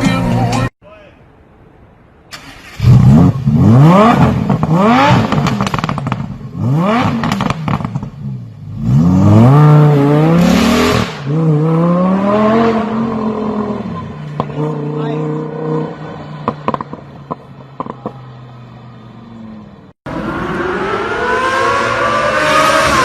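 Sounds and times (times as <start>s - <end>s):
car engine revving: 2.4s - 23.0s
exhaust crackling pops: 4.3s - 6.5s, 7.2s - 8.2s.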